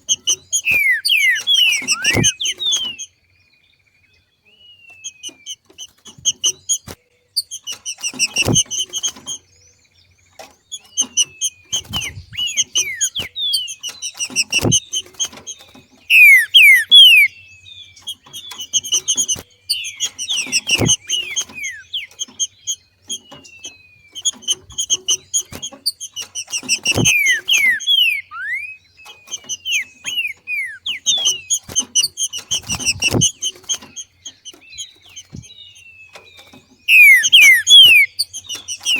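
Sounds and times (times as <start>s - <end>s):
bird downslurred whistles: 0.1s - 3.1s, 11.0s - 15.0s, 16.1s - 17.4s, 18.6s - 23.2s, 24.1s - 33.6s, 36.8s - 38.9s
bird call bursts of high notes: 0.5s - 3.0s, 16.1s - 17.3s, 26.2s - 31.7s, 36.8s - 38.9s.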